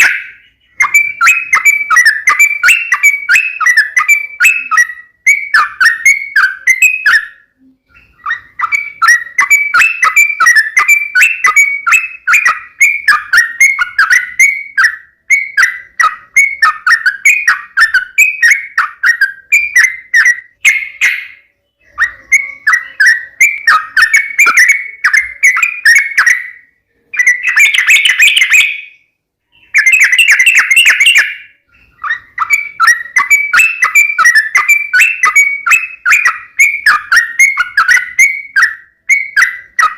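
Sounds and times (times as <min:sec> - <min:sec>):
bird rapid chattering calls: 0:00.0 - 0:26.6, 0:27.2 - 0:39.9.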